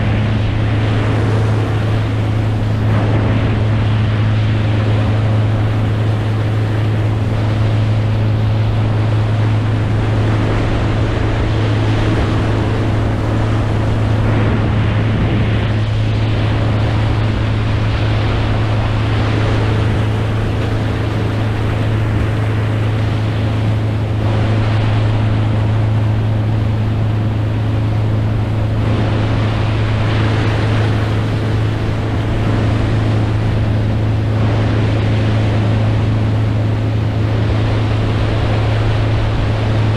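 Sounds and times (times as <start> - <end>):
boat motor humming: 0.0 - 39.9
rushing water: 0.0 - 39.9
wind: 0.0 - 39.9.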